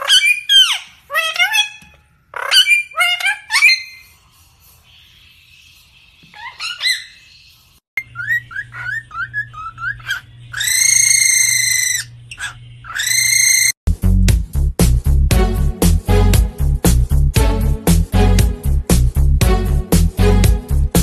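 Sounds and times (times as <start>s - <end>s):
bird calls: 4.8s - 13.8s.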